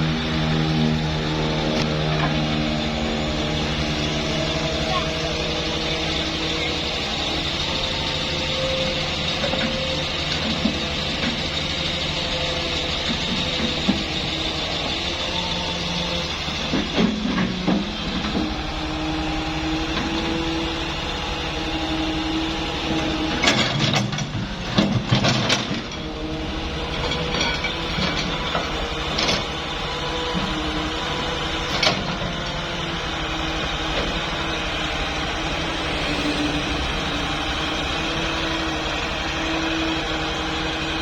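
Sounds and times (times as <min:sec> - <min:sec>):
excavator engine running: 0:00.0 - 0:41.0
machine clanks and knocks: 0:16.6 - 0:18.6, 0:23.3 - 0:26.1, 0:26.8 - 0:29.6.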